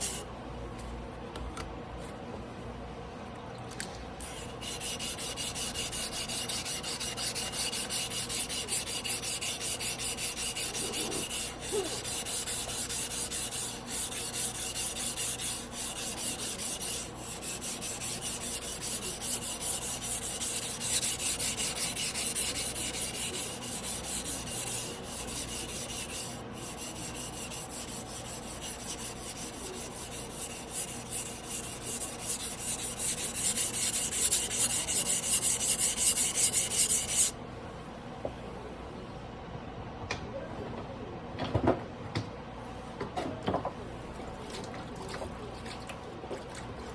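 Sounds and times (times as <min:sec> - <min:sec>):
blade scraping on whetstone: 0:04.3 - 0:37.3.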